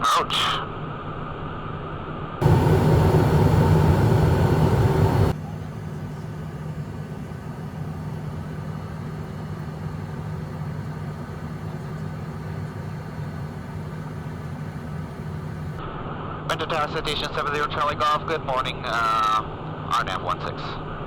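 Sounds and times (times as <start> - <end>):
airflow over aircraft: 2.4 - 15.8
jet engines humming: 2.4 - 15.8.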